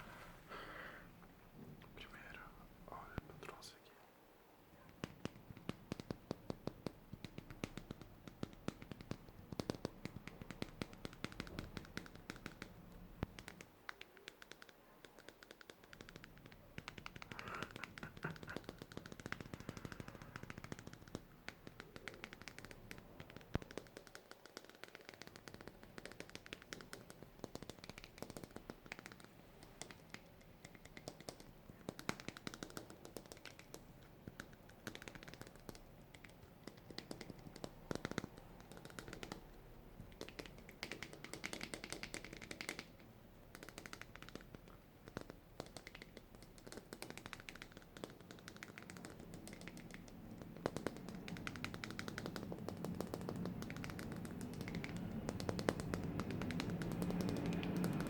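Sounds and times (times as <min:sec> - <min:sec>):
fast tapping and clicking: 0:04.8 - 0:58.0.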